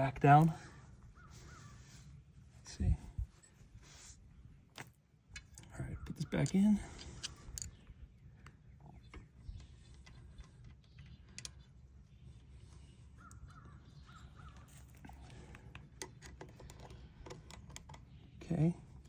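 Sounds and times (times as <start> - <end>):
faint bird calls: 0.6 - 2.2, 5.6 - 19.0
faint handling clicks and taps: 4.7 - 13.8, 14.5 - 19.0.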